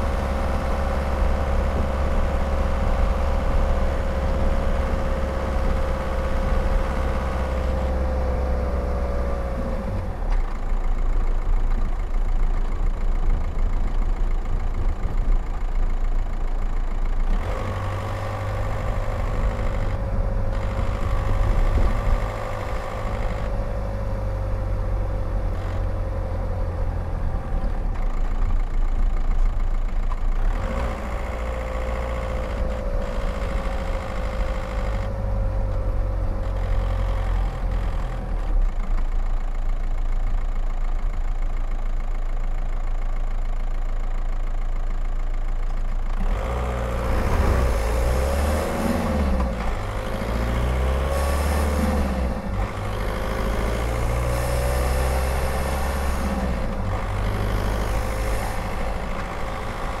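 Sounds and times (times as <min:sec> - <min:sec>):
diesel car engine running: 0:00.0 - 1:00.0.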